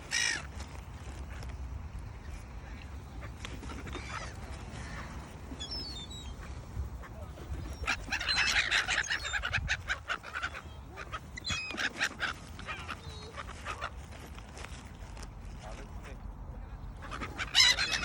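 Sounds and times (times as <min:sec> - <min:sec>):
birds calling loudly: 0:00.0 - 0:01.2, 0:03.0 - 0:14.7, 0:16.9 - 0:18.0.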